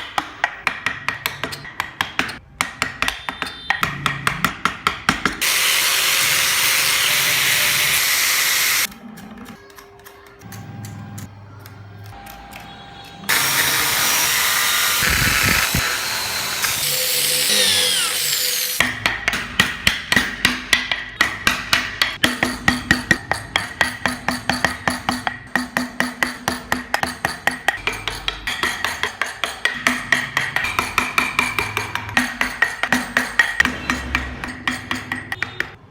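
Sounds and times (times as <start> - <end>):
mallet tapping chisel: 0.0 - 5.5, 18.8 - 35.8
power tool cutting wood: 5.4 - 8.9, 13.3 - 18.8.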